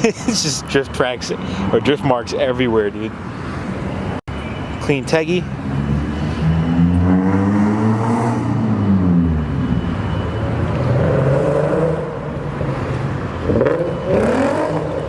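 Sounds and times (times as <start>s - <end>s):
car engines revving: 4.8s - 15.0s.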